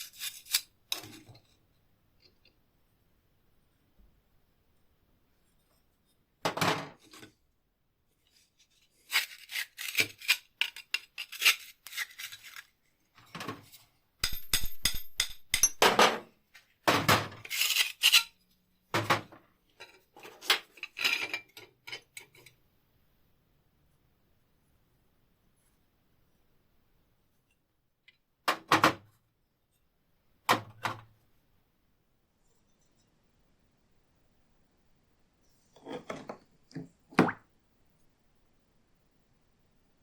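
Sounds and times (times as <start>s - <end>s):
metal tool clinks and scrapes: 19.8s - 22.5s.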